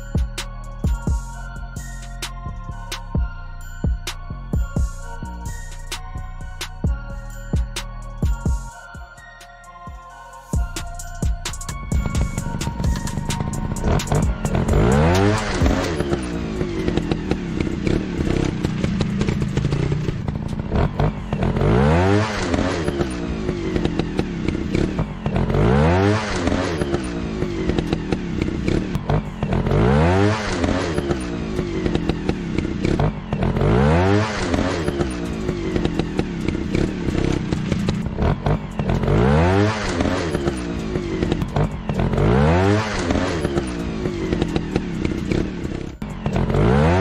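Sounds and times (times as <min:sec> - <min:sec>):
motorcycle engine revving: 0:10.6 - 0:47.0.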